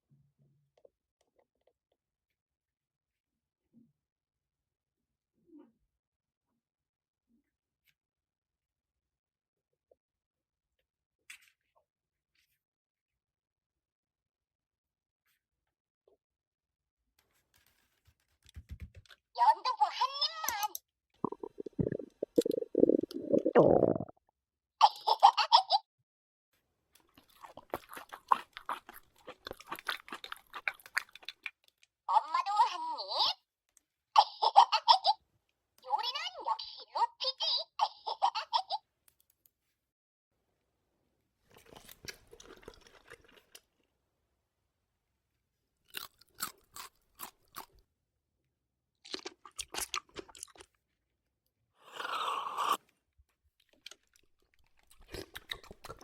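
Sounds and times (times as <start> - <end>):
crunching and chewing: 27.0 - 32.0, 41.4 - 43.9, 45.8 - 47.9, 49.0 - 51.0, 51.8 - 56.0.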